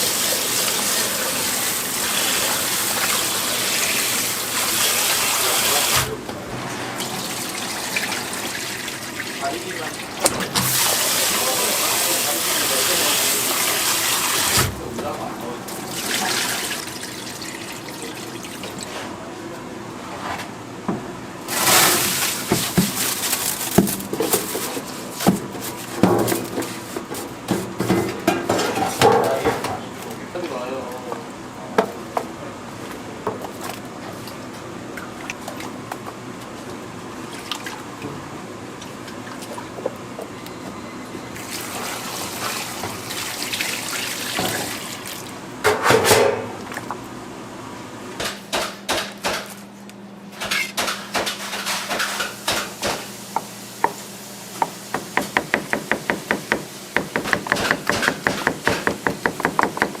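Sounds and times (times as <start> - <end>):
running water: 0.0 - 6.2, 6.8 - 19.0, 41.4 - 45.4
fast sharp knocks: 54.6 - 60.0.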